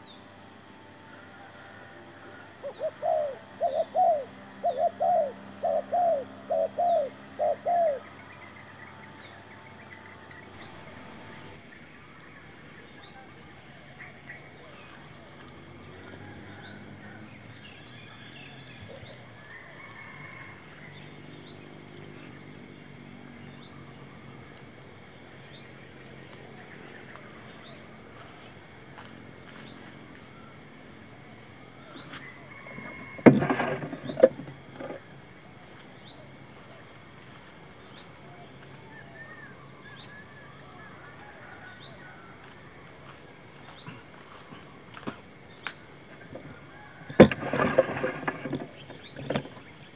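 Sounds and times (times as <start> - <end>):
insect drone: 0.0 - 49.9
faint bird calls: 2.3 - 12.4
short rattle: 32.7 - 35.0, 46.4 - 49.8.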